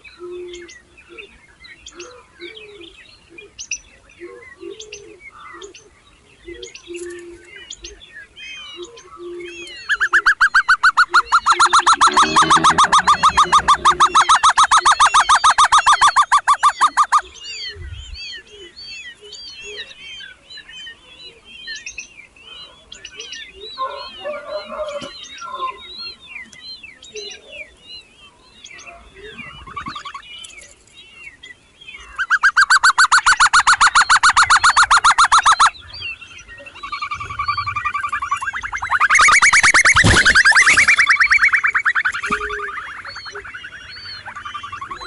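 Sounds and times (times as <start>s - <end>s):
baby birds cheeping: 6.4s - 45.0s
loud rapid pulsing bird call: 9.9s - 17.2s, 32.2s - 45.0s.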